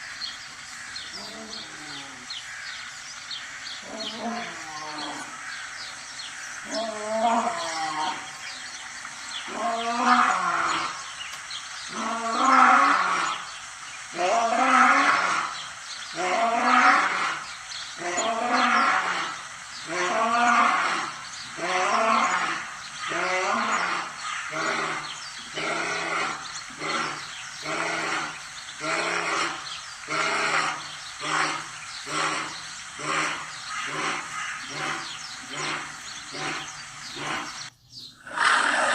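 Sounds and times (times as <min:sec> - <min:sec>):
lion roaring: 0:09.4 - 0:11.0, 0:18.0 - 0:38.9.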